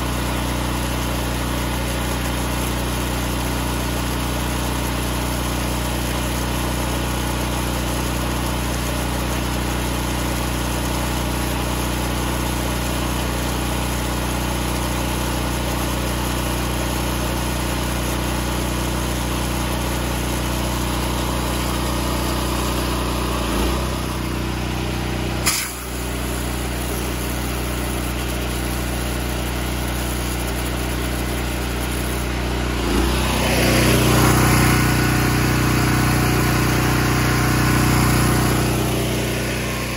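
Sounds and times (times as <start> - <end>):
pressure washer engine running: 0.0 - 39.9
sharp click: 25.4 - 25.9
hiss: 25.4 - 26.0.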